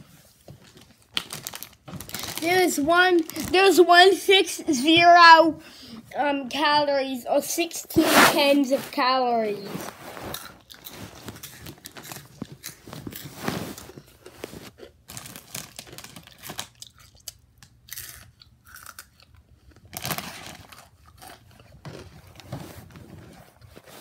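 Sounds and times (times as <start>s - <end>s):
crunching chips: 1.1s - 3.5s, 10.3s - 22.5s.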